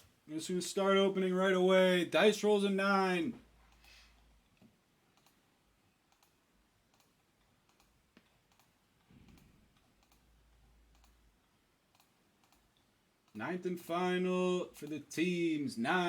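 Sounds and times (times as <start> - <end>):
faint clicks: 3.7 - 5.4, 6.1 - 10.3, 10.9 - 13.4.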